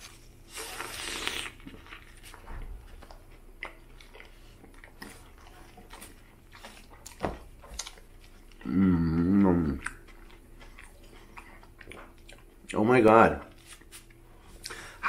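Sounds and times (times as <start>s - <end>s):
quiet chewing: 0.0s - 15.0s
wet slurping suck: 0.5s - 1.6s.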